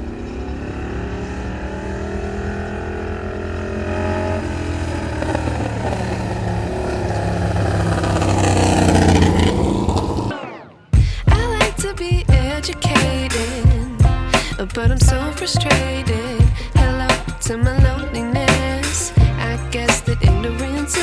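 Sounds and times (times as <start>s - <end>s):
motorcycle engine revving: 0.0s - 21.0s
music with a beat: 11.0s - 21.0s.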